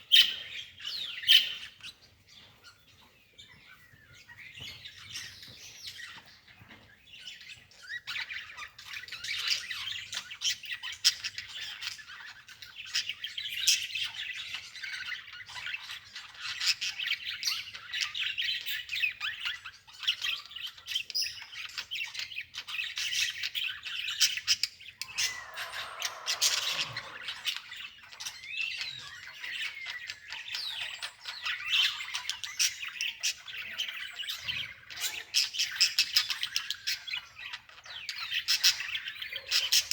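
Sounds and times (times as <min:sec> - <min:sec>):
small birds chirping and squawking: 0:00.0 - 0:39.9
lower bird call sliding down: 0:25.0 - 0:27.5.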